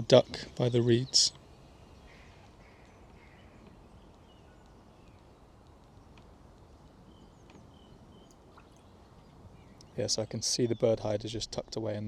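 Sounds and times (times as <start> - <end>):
bird chirps: 0.0 - 6.2, 6.9 - 11.2
soft clicks: 2.8 - 8.8.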